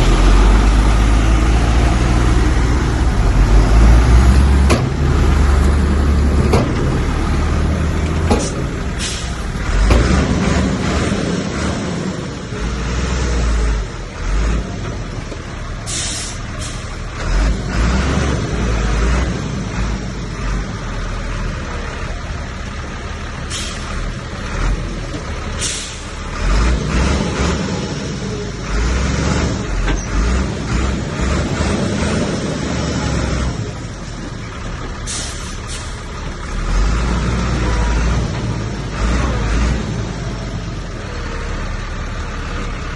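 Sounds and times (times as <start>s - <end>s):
heavy diesel machinery engine rumble: 0.0s - 42.9s
short sharp hisses: 8.4s - 9.4s, 15.9s - 16.9s, 23.5s - 23.9s, 25.6s - 26.1s, 35.1s - 36.0s.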